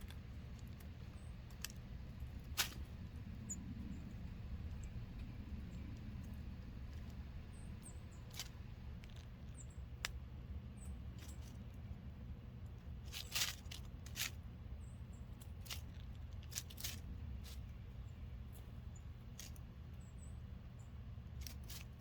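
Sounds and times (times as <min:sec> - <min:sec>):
beaks tapping on wood and seed: 0:00.0 - 0:12.0, 0:21.3 - 0:22.0
steady low rumble: 0:00.0 - 0:22.0
faint high bird chirps: 0:03.4 - 0:06.3.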